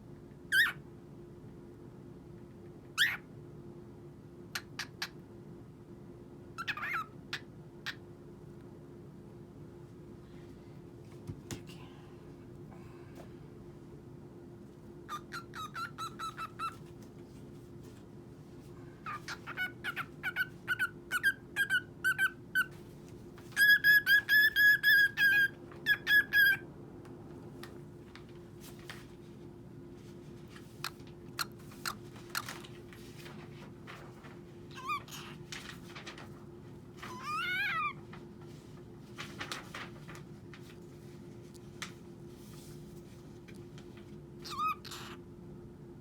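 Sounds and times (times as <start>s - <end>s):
cockatiel chirping: 0.5s - 0.8s, 3.0s - 3.2s, 6.6s - 8.0s, 15.1s - 16.8s, 19.0s - 22.7s, 23.6s - 26.6s, 30.8s - 32.6s, 34.7s - 35.4s, 37.1s - 38.0s, 44.4s - 45.2s.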